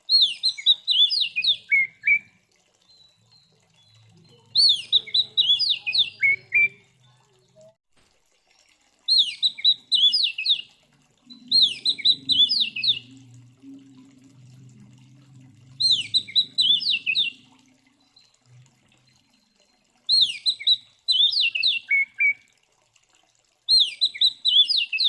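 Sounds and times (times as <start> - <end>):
bird singing whistled notes: 0.1 - 2.3, 4.6 - 6.8, 9.1 - 10.6, 11.3 - 13.2, 15.8 - 18.2, 20.1 - 22.4, 23.7 - 25.0.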